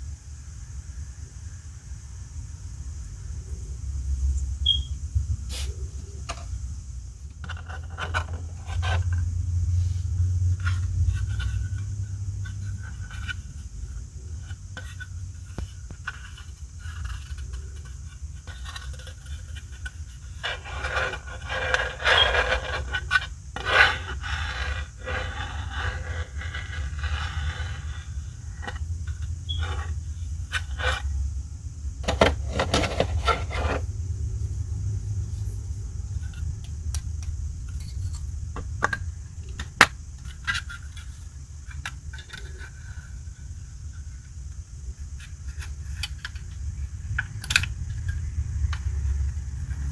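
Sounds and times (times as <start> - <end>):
steady low hum: 0.0 - 49.9
packaging rustling and scraping: 7.2 - 31.1, 32.0 - 33.9, 35.2 - 43.2.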